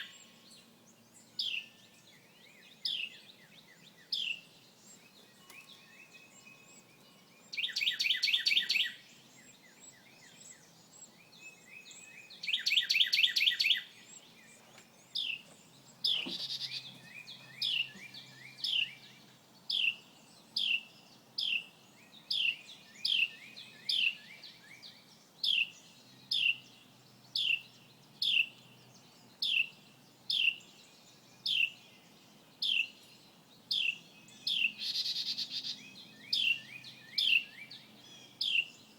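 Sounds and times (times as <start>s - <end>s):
songbird trilling: 4.0s - 10.7s, 11.6s - 21.7s.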